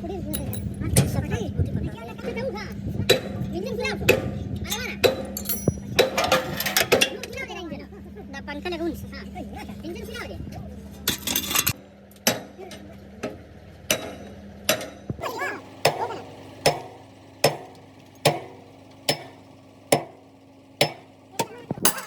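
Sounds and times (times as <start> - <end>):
hammer striking metal: 4.1 - 7.1, 13.9 - 15.0, 16.6 - 20.2, 20.8 - 22.0.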